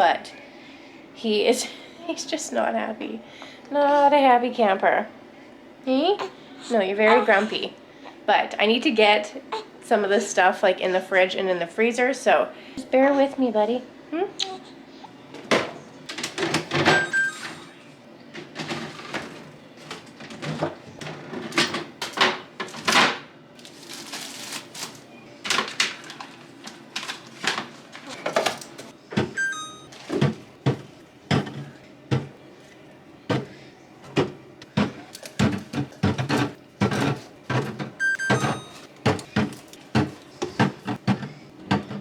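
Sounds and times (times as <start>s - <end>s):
knocks and clunks of containers: 15.4s - 17.5s, 18.4s - 23.2s, 27.0s - 32.4s, 33.3s - 42.0s
packaging rustling: 23.6s - 28.9s.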